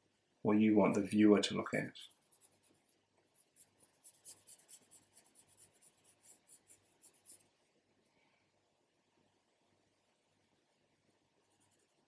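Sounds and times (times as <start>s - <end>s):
pencil scratching on paper: 2.0s - 7.5s.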